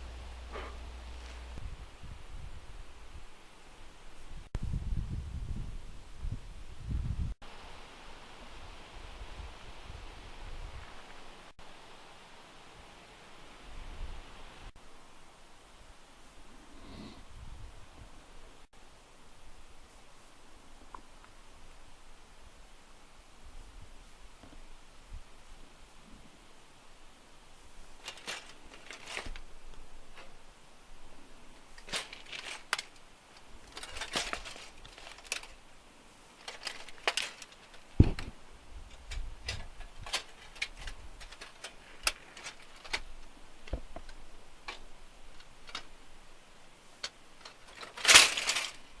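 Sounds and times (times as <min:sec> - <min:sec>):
rustling handling noises: 0:00.0 - 0:01.8, 0:27.7 - 0:30.4, 0:31.3 - 0:49.0.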